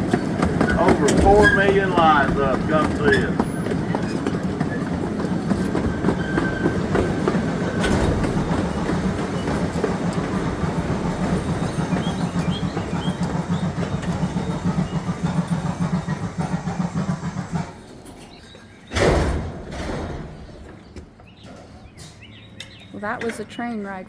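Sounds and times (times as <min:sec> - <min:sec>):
train wheels and motor rumbling: 0:00.0 - 0:24.0
loud thump: 0:18.9 - 0:20.4.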